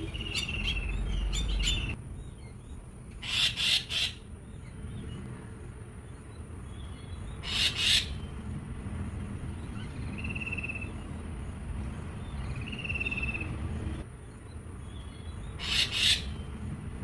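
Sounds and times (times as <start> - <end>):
buzzy trilled bird calls: 0.0 - 4.8.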